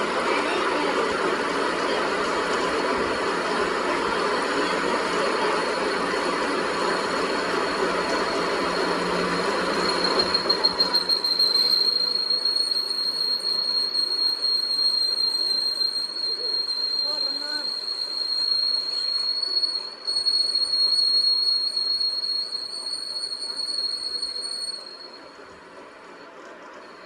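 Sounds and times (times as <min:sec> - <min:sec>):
harsh rough machine noise: 0:00.2 - 0:18.6
high-pitched metal cutting squeal: 0:05.7 - 0:25.3.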